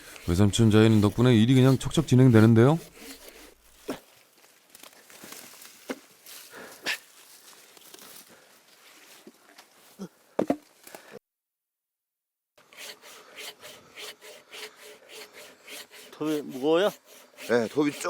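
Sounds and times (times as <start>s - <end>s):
hand saw cutting log: 0.0s - 4.1s, 12.6s - 18.0s
logs knocking and rustling: 3.0s - 6.2s, 10.4s - 10.8s.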